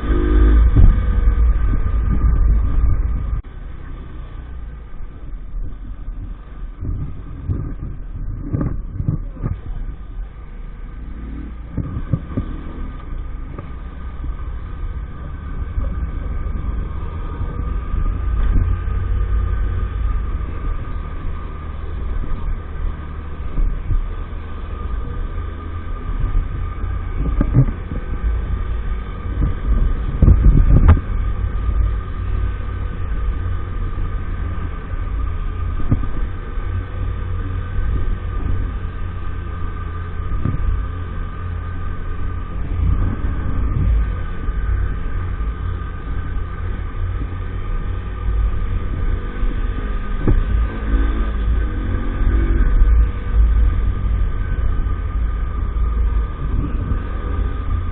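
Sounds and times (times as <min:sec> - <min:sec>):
small motorbike engine running: 0:00.0 - 0:03.3
loud bumps: 0:00.0 - 0:03.8
wind buffeting microphone: 0:00.0 - 0:57.9.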